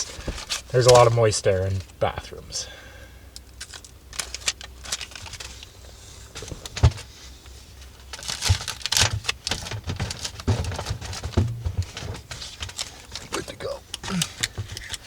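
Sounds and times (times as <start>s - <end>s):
foil tape crinkling: 3.5s - 5.8s, 8.0s - 15.0s.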